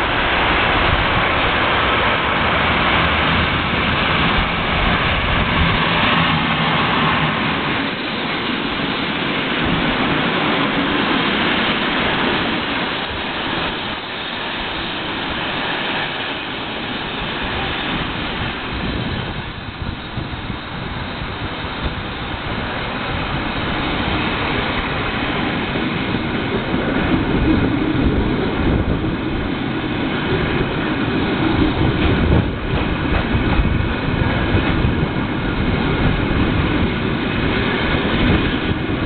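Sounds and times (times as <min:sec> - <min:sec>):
locomotive passing: 0:00.0 - 0:39.0.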